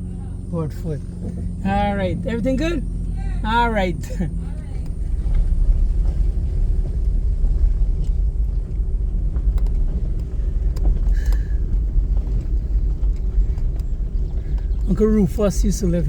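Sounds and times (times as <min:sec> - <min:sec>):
car engine: 0:00.0 - 0:16.0
road rumble: 0:00.0 - 0:16.0.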